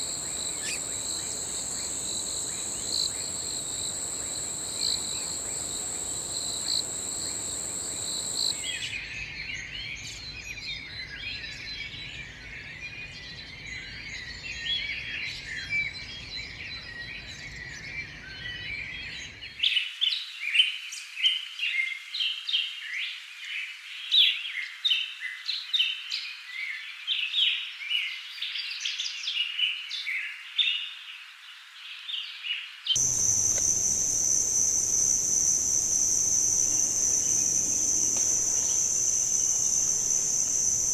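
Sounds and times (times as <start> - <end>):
birds chirping and calling: 0.0 - 8.9
high insect drone: 0.0 - 9.0, 33.0 - 40.9.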